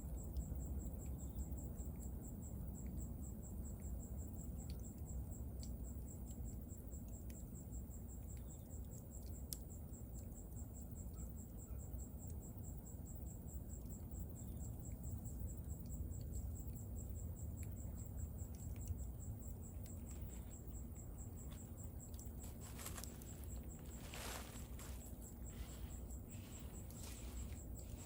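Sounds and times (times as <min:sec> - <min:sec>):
cricket chirping: 0:00.0 - 0:28.0
bonfire crackling: 0:22.3 - 0:28.0.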